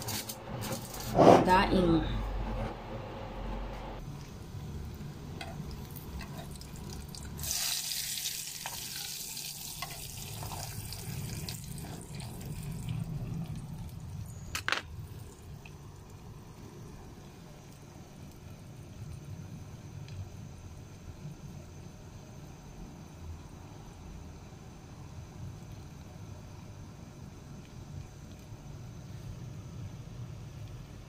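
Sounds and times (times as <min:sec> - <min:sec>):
food sizzling in a pan: 0:04.2 - 0:16.0.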